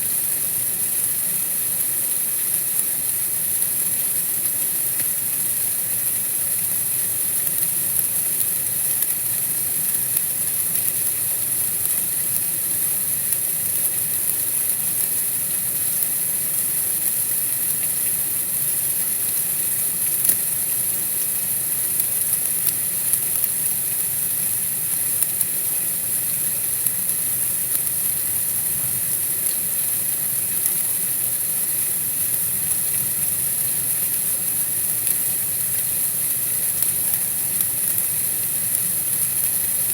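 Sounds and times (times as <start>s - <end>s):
faint ticks: 6.0s - 18.2s, 19.8s - 24.0s, 26.7s - 31.4s, 34.0s - 39.9s.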